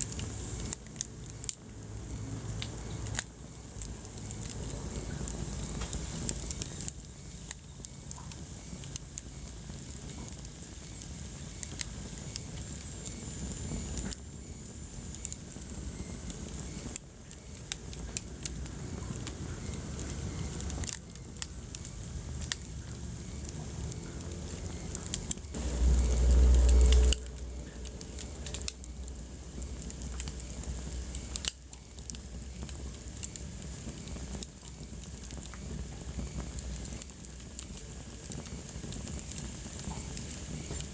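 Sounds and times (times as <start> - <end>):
wood fire crackling: 0.0 - 40.9
loud low rumble: 22.3 - 31.3.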